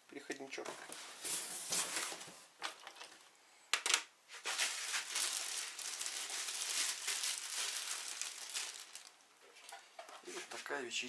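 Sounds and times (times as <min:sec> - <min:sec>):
sharp packaging clicks: 0:03.8 - 0:09.2
wrapping crinkling: 0:04.3 - 0:09.8.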